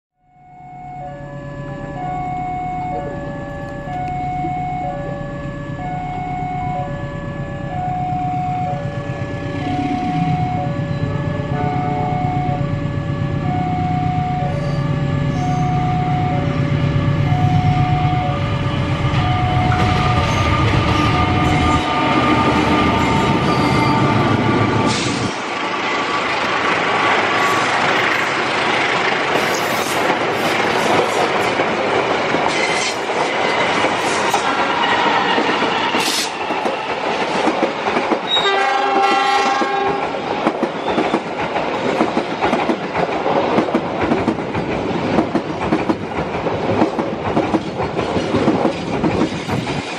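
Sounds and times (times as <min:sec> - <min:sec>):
diesel locomotive rumble: 0:00.5 - 0:49.9
train horn blast: 0:09.6 - 0:17.3, 0:38.3 - 0:40.2
train wheels clattering: 0:26.6 - 0:49.9.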